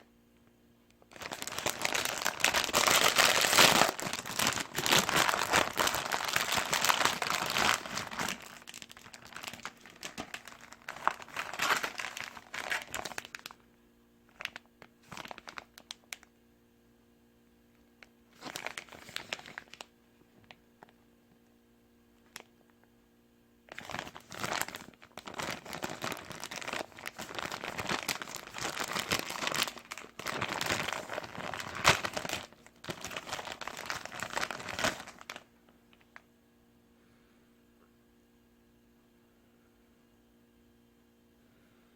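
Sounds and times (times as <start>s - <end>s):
low steady hum: 0.0s - 41.9s
plastic packaging crinkling: 1.0s - 13.6s, 14.3s - 16.3s, 18.3s - 21.0s, 23.7s - 36.2s.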